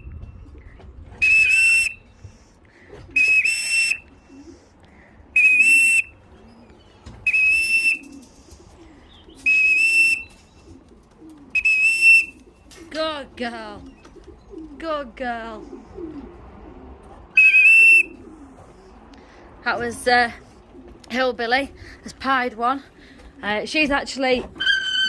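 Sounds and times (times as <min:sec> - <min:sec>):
shrill whistle blasts: 0:01.2 - 0:02.0, 0:03.2 - 0:04.0, 0:05.4 - 0:06.1, 0:07.3 - 0:08.0, 0:09.5 - 0:10.3, 0:11.6 - 0:12.4, 0:17.4 - 0:18.1, 0:24.6 - 0:25.0.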